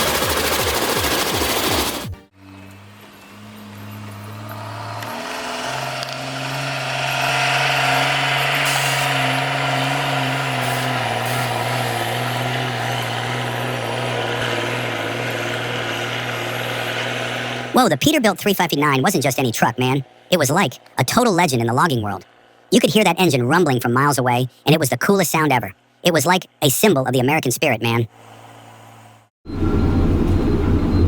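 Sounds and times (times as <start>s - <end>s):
truck diesel engine running: 0.0s - 24.6s.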